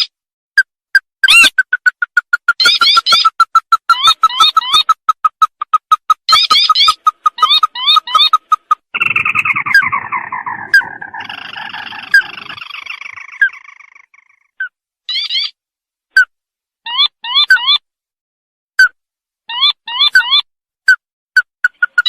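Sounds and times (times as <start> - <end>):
recorded crake call: 1.2 - 15.5, 21.4 - 22.0.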